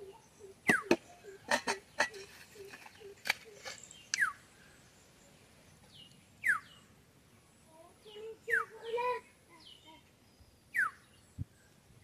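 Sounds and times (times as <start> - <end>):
birds calling with sliding notes: 0.0 - 7.0, 8.0 - 11.2.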